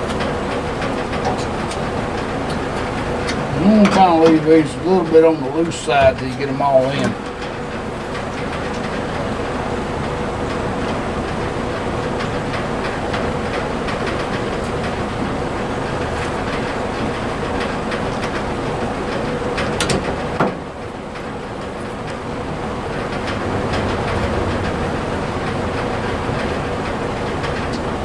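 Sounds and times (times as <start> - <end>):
steady hum: 1.0 - 8.0.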